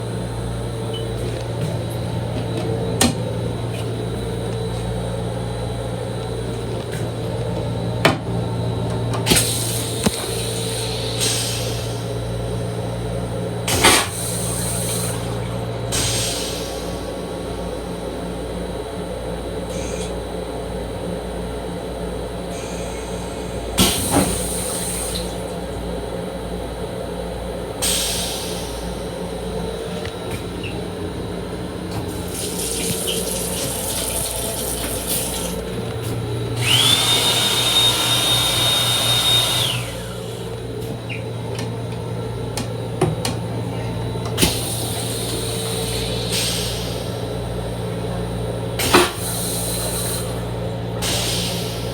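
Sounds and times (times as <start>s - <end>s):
electrical hum: 0.0s - 15.9s, 25.1s - 46.3s
water running: 31.6s - 36.8s.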